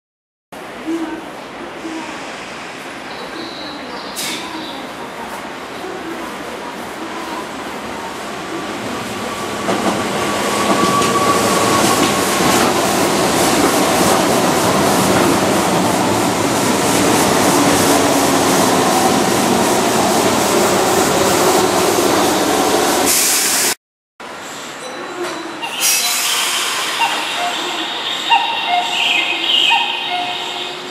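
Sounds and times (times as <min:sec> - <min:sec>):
electric train running past: 0:05.8 - 0:23.8, 0:24.6 - 0:30.9
hiss: 0:23.1 - 0:23.8, 0:25.7 - 0:28.2.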